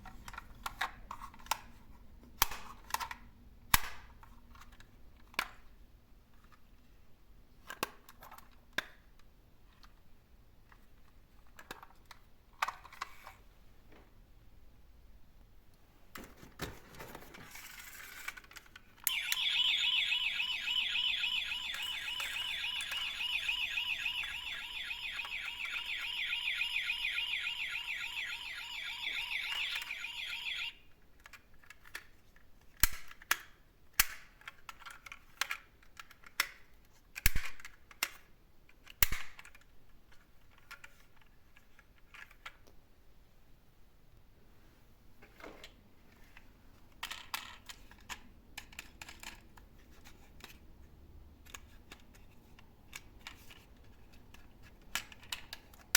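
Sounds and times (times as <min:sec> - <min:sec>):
warbling electronic alarm tone: 0:19.1 - 0:30.7.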